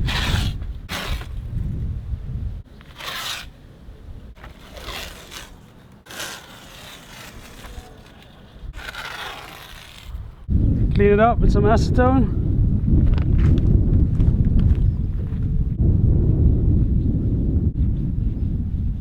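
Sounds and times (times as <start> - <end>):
tape ripping off roll: 0.0 - 1.5, 2.8 - 3.6, 4.4 - 10.4
wind rumble on microphone: 0.0 - 2.8, 8.5 - 19.0.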